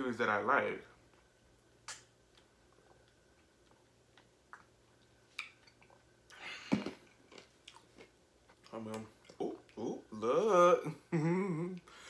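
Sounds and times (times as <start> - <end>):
soft mouth clicks and smacks: 1.8 - 6.4.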